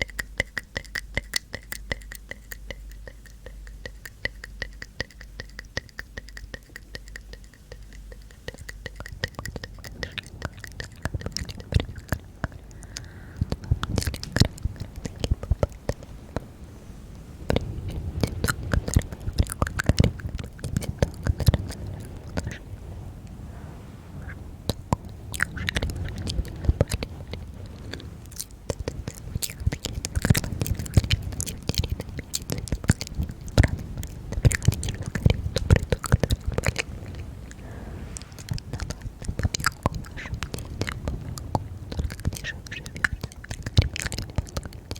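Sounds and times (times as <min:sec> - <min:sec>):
wet mouth clicks and smacks: 0:00.0 - 0:22.8, 0:24.2 - 0:37.6, 0:38.2 - 0:44.9
low rumble: 0:09.9 - 0:42.2.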